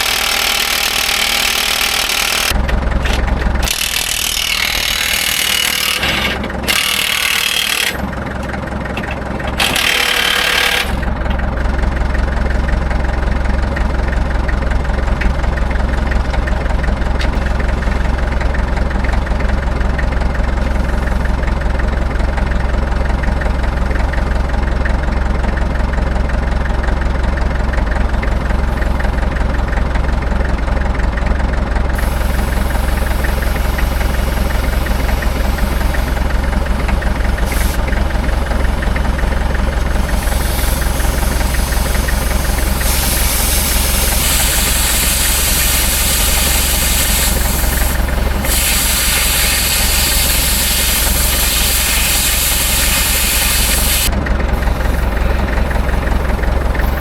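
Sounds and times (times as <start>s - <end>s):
engine idling: 0.0s - 57.0s
hiss: 32.0s - 36.2s, 37.4s - 37.9s, 40.1s - 54.1s.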